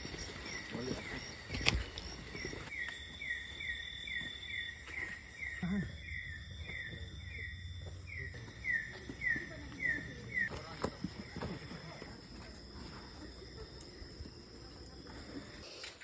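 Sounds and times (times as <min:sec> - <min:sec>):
high-pitched insect drone: 0:00.0 - 0:11.5.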